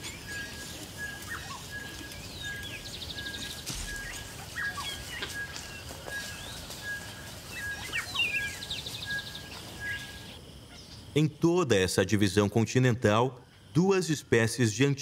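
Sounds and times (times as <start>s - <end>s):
buzzy bird trills: 0.0s - 11.0s
bird chirps and sweeping calls: 0.0s - 11.2s.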